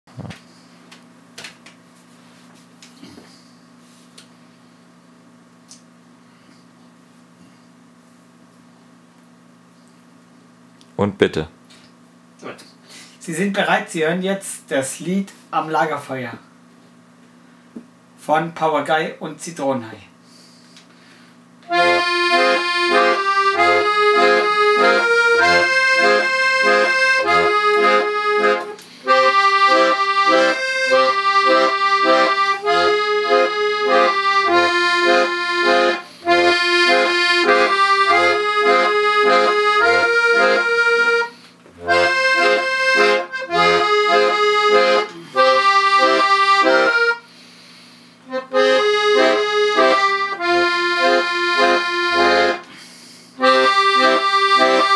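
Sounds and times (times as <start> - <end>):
accordion playing folk tune: 21.6 - 47.4, 48.2 - 52.7, 53.4 - 54.9.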